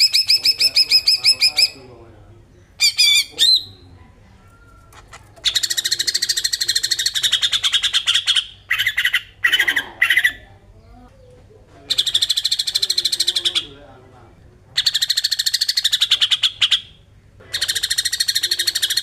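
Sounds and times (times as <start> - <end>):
bird harsh rattling call: 5.0 - 10.4, 17.5 - 19.0.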